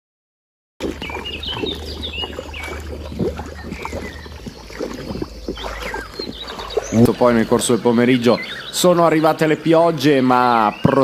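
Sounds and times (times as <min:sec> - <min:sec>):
steady low hum: 0:00.8 - 0:09.0
birds chirping: 0:00.8 - 0:11.0.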